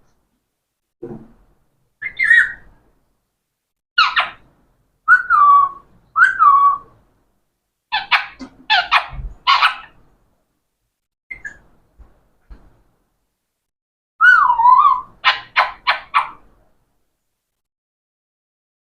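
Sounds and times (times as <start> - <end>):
parrot whistled calls: 2.0 - 2.7, 4.0 - 4.4, 5.1 - 6.9, 11.3 - 11.7, 14.2 - 16.4
parrot harsh squawks: 4.0 - 4.4, 7.9 - 10.0, 14.2 - 16.4.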